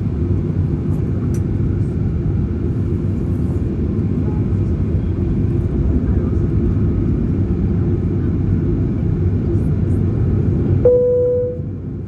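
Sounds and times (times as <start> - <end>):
jet engines rumbling in cabin: 0.0 - 12.0.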